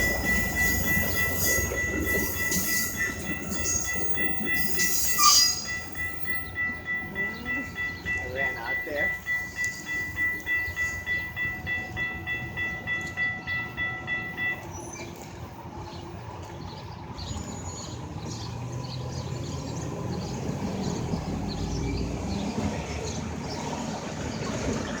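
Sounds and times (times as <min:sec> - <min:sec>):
electronic crossing bells ringing: 0:00.0 - 0:15.2
rail clicks: 0:00.0 - 0:16.7
train rumbling: 0:00.0 - 0:25.0.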